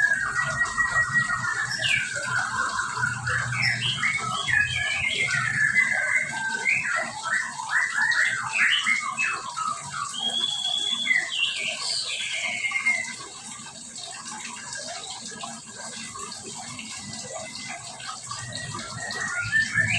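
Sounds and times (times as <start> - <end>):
songbirds chirping and whistling: 0.0 - 19.9.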